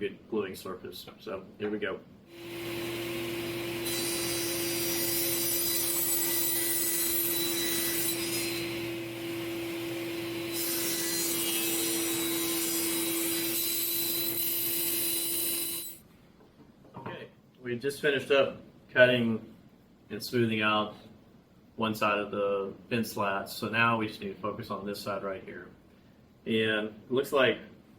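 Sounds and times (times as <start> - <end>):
table saw cutting wood: 2.3 - 16.0.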